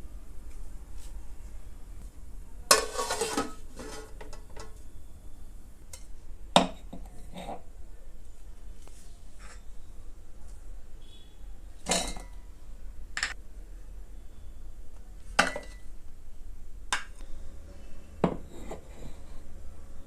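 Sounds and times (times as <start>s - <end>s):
utensil clinking against pot: 2.7s - 4.8s.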